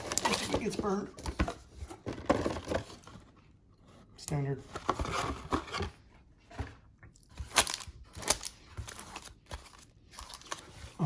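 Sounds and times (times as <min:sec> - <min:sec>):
packaging crinkling and tearing: 0:00.0 - 0:01.0, 0:07.4 - 0:10.7.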